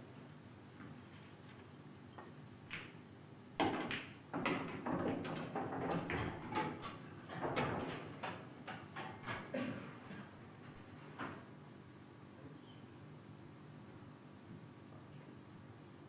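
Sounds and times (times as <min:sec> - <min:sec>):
pool balls clacking: 0:03.6 - 0:09.5.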